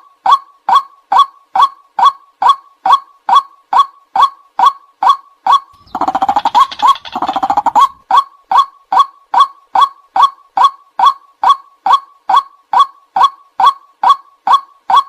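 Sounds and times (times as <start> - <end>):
bird chattering run: 5.8 - 8.1
waterhen kwak calls: 5.8 - 8.2.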